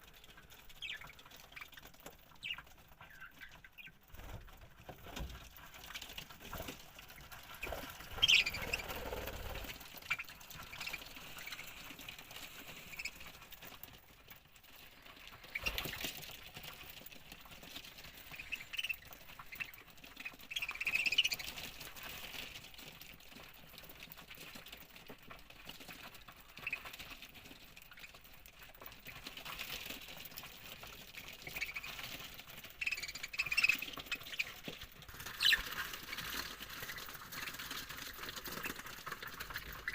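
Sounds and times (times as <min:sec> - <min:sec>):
budgerigars chirping: 0:00.8 - 0:01.8, 0:02.4 - 0:04.0, 0:07.6 - 0:09.5, 0:10.1 - 0:11.8, 0:18.2 - 0:21.6, 0:31.4 - 0:32.1, 0:32.8 - 0:34.6, 0:35.2 - 0:35.8.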